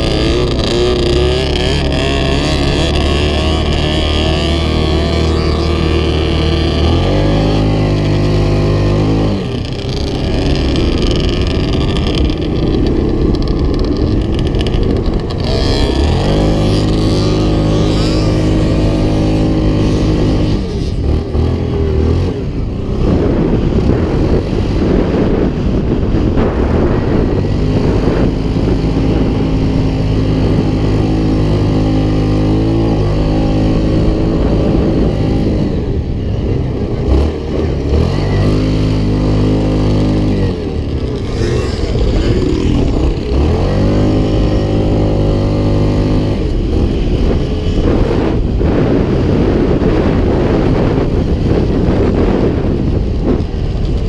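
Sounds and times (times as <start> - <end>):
off-road vehicle engine running hard: 0.0 - 54.0.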